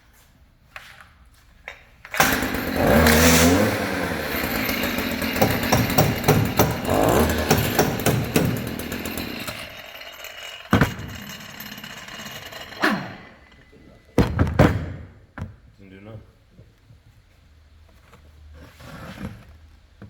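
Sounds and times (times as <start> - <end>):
string trimmer engine running: 2.1 - 13.8.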